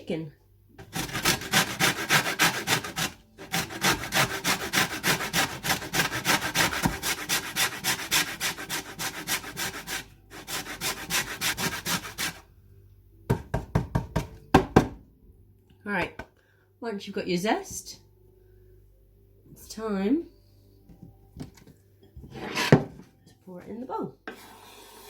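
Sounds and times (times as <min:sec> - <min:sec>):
peel rasping on a zester: 0:00.8 - 0:12.4.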